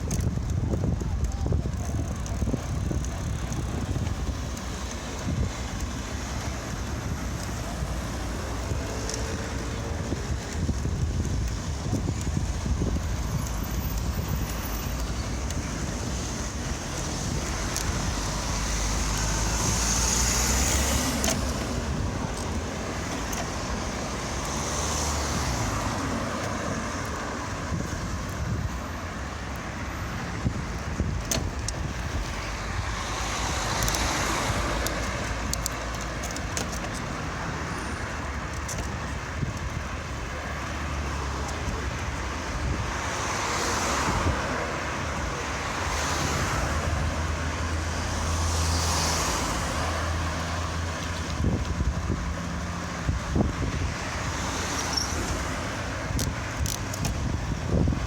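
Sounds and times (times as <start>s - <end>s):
cars passing: 0.0s - 58.0s
low traffic rumble: 0.0s - 58.0s
sharp clicks: 32.6s - 37.2s.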